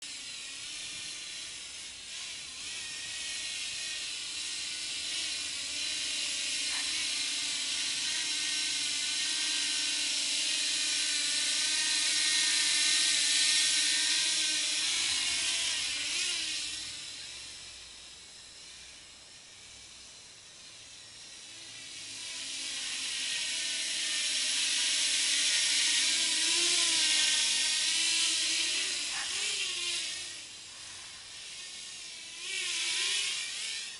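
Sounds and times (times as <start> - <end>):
quadcopter motors whining: 0.0 - 33.9.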